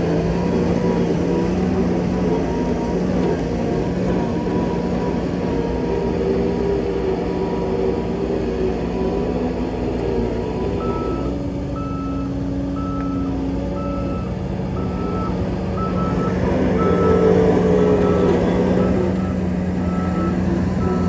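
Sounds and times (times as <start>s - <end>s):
diesel engine running: 0.0s - 21.0s
back-up alarm beeping: 10.8s - 21.0s.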